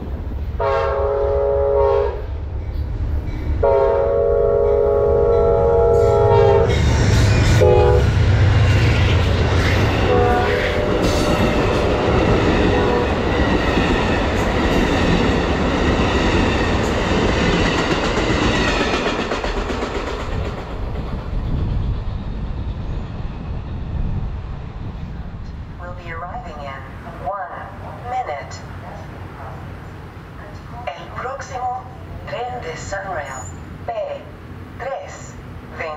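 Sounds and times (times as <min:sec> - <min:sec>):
train horn: 0:00.6 - 0:02.3, 0:03.6 - 0:13.5
train wheels rumbling and clicking: 0:02.3 - 0:03.6, 0:06.1 - 0:25.8.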